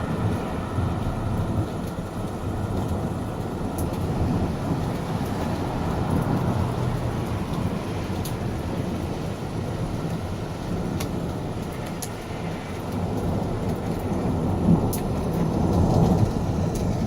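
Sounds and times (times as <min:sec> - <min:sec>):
rain ticks: 0:00.0 - 0:17.0
thunder rumbling: 0:12.7 - 0:17.0.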